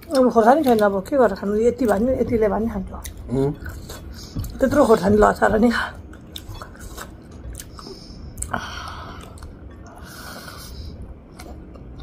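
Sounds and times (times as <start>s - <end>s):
person chewing noodles: 3.0s - 5.0s, 6.0s - 12.0s.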